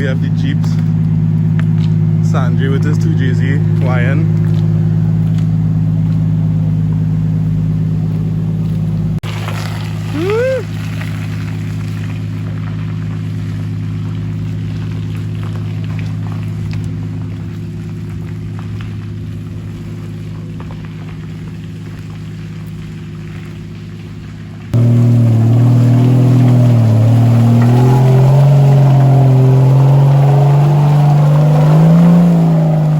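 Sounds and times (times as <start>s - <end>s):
vehicle engine humming: 0.0s - 32.9s
rising and falling tone: 24.8s - 32.9s.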